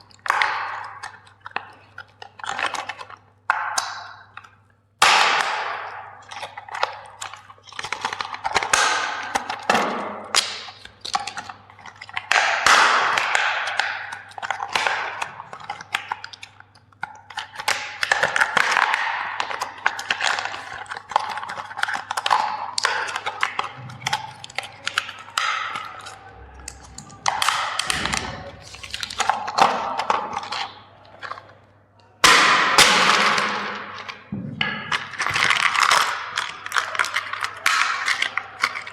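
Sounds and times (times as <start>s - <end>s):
plastic toys and packaging handled: 0.0s - 5.4s, 6.2s - 38.9s.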